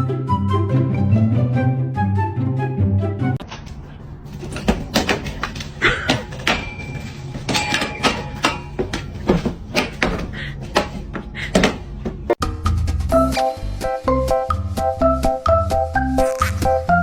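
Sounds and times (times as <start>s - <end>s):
knocks and thuds in a room: 4.2s - 12.5s.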